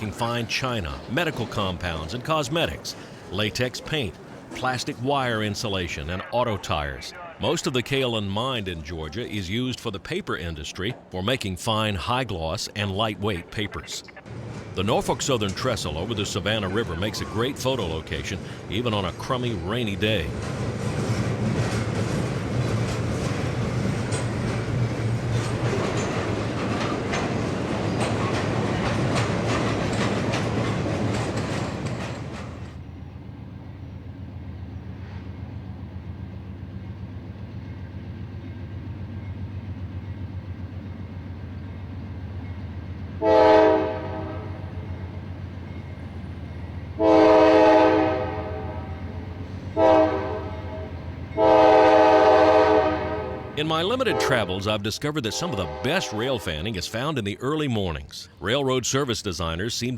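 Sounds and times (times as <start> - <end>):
diesel locomotive engine humming: 0.0 - 59.9
train wheels clicking over rail joints: 14.3 - 43.2
multi-tone air horn blasts: 43.2 - 44.6, 47.0 - 48.9, 49.8 - 53.5, 55.3 - 56.3.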